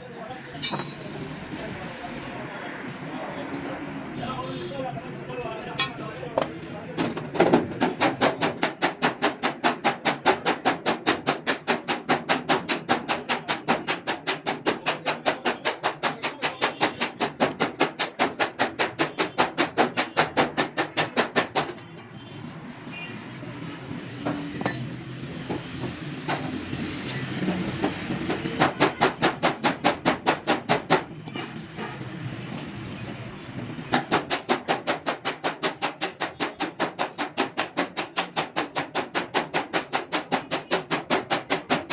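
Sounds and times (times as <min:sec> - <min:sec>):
hammer striking metal panel: 0:07.2 - 0:21.8, 0:27.5 - 0:32.4, 0:33.9 - 0:41.9.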